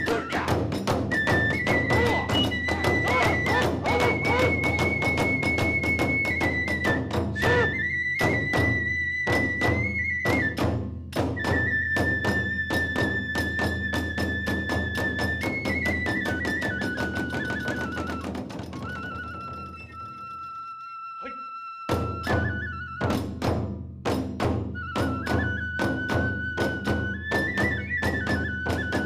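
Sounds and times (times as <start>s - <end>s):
fast steady drum beats: 0.0s - 7.8s, 23.2s - 25.2s
bamboo flute long high notes: 0.0s - 23.4s, 24.7s - 29.0s.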